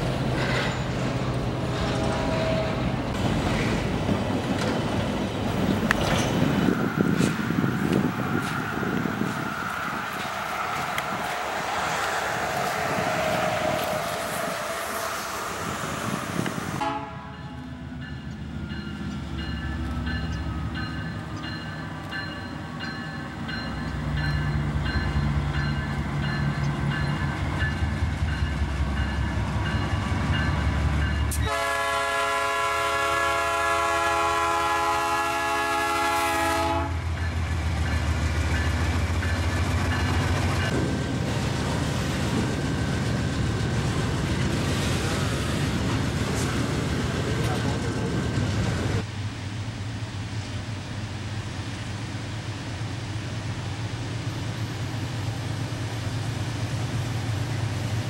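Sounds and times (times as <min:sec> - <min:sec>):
diesel locomotive engine rumble: 0:00.0 - 0:58.0
locomotive horn blast: 0:16.7 - 0:17.6, 0:31.3 - 0:37.1.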